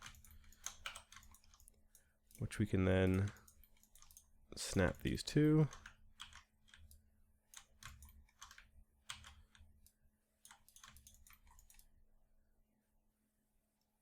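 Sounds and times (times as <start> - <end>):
computer keyboard and mouse clicking: 0.0 - 4.3, 5.7 - 11.9.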